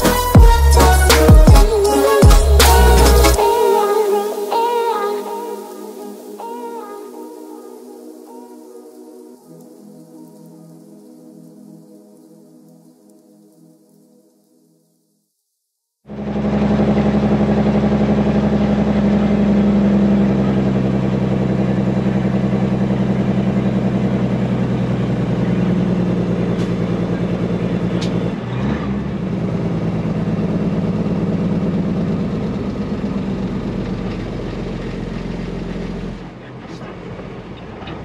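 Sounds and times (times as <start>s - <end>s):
diesel truck engine running: 0.0s - 3.6s, 16.1s - 38.0s.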